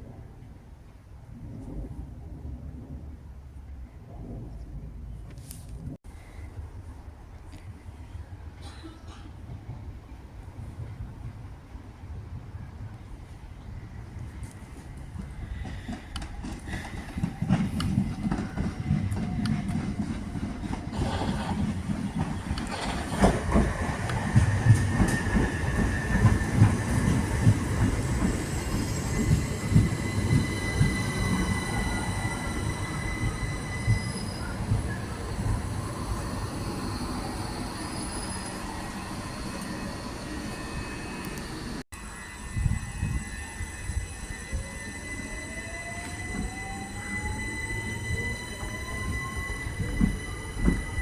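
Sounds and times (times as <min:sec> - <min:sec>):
train rumbling: 0:08.0 - 0:51.0
wheels knocking over rail joints: 0:15.6 - 0:28.4
wheels and brakes squealing: 0:20.9 - 0:51.0.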